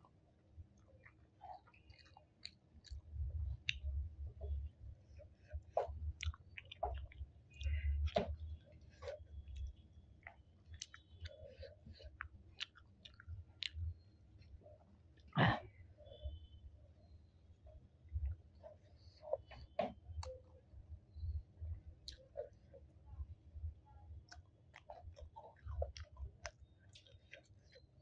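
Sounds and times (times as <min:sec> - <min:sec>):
person chewing with mouth clicks: 0:00.8 - 0:14.6, 0:22.0 - 0:22.8, 0:24.2 - 0:28.0.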